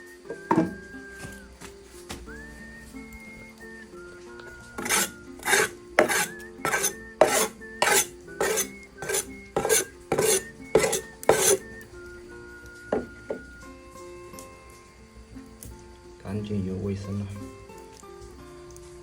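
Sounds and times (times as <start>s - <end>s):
soft background music: 0.0s - 19.0s
scraping strokes: 4.8s - 11.7s.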